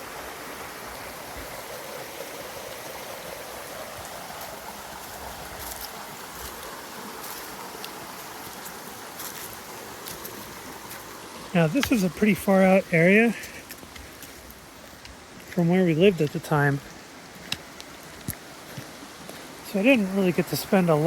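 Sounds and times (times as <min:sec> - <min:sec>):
creek flowing: 0:00.0 - 0:21.0.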